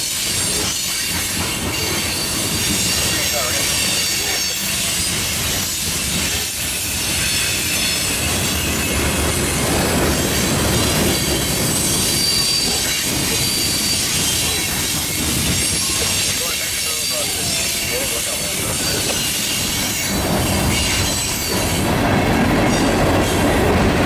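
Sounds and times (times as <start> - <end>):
steel wheels rolling on rail: 0.0 - 24.0
wheels clacking over rail joints: 0.0 - 24.0
high-pitched wheel squeal: 10.3 - 21.8.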